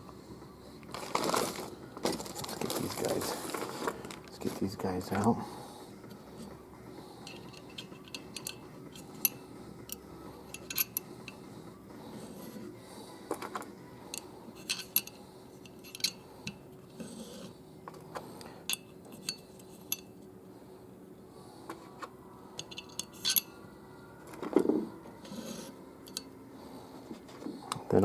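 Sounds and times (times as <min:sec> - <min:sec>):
small metal vanes clinking: 0:07.2 - 0:11.4, 0:14.1 - 0:20.2, 0:22.5 - 0:23.6, 0:25.2 - 0:26.4.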